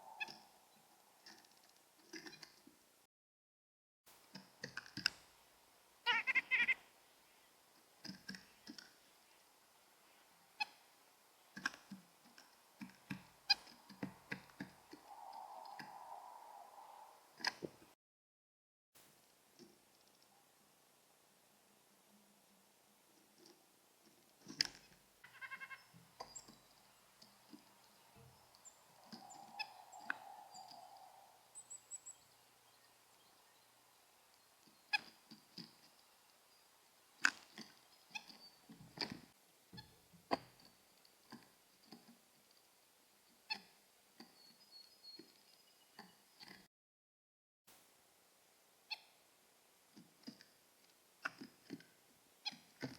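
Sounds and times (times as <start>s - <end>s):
soft steady hiss: 0.0s - 3.1s, 4.1s - 18.0s, 19.0s - 46.6s, 47.7s - 52.9s
nuthatch nasal honking calls: 6.1s - 6.8s, 25.2s - 26.0s.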